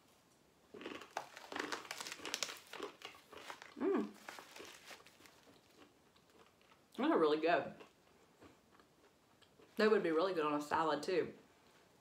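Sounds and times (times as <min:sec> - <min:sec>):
person chewing crunchy snack: 0:00.7 - 0:06.9.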